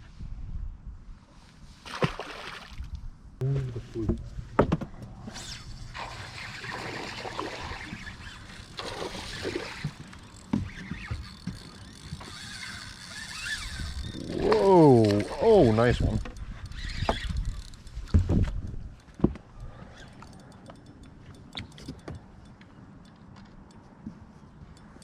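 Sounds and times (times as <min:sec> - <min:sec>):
water sloshing: 0:05.4 - 0:15.7.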